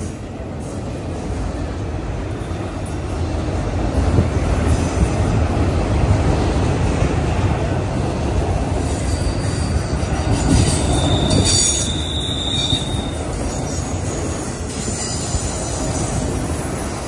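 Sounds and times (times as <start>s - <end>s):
freight train wheels rumbling: 0.0s - 17.0s
high wheel squeal: 8.8s - 16.9s.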